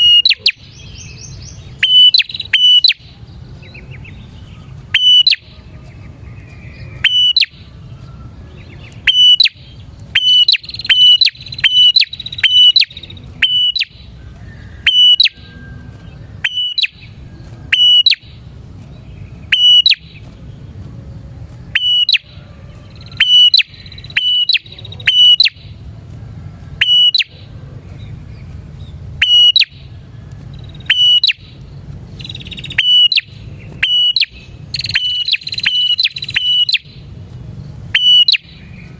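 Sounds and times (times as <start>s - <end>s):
bird calling with sharp ringing note: 0.0s - 3.2s, 4.9s - 5.6s, 6.7s - 7.7s, 9.1s - 15.7s, 16.4s - 18.4s, 19.5s - 20.2s, 21.7s - 25.7s, 26.8s - 27.4s, 30.6s - 31.6s, 32.2s - 37.0s
faint bird twittering: 0.0s - 25.9s, 26.7s - 38.9s.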